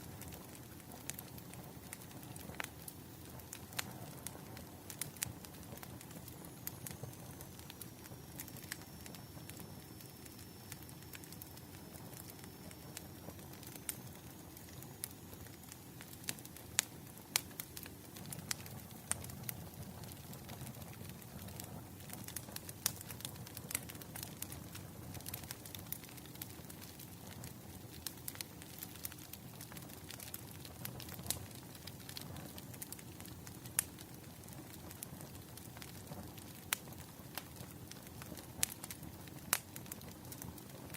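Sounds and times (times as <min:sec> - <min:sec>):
low rumble of flames: 0:00.0 - 0:40.9
wood fire pops and snaps: 0:00.0 - 0:40.9.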